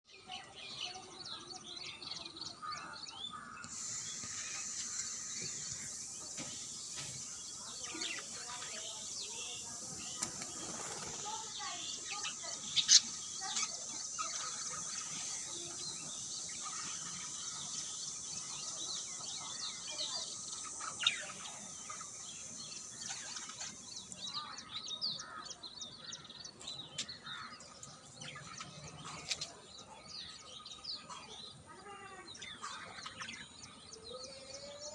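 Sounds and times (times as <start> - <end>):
small birds chirping: 0.0 - 34.9
steady high hiss: 3.3 - 25.4.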